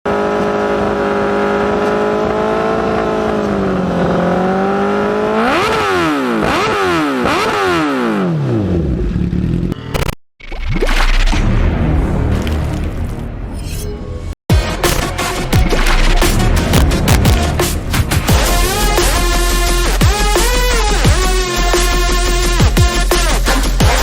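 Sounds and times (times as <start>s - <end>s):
motorcycle engine revving: 0.1s - 10.2s.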